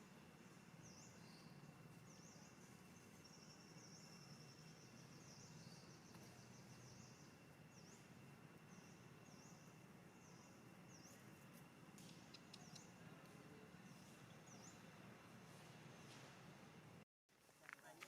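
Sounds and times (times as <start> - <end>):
low steady hum: 0.0 - 17.0
small bird chirping: 12.1 - 13.0.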